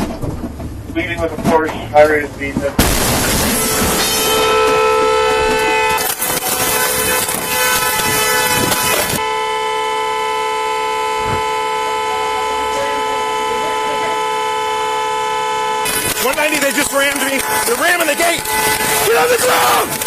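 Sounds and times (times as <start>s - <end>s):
loud rushing noise: 2.8s - 9.2s
steady horn-like tone: 3.4s - 20.0s.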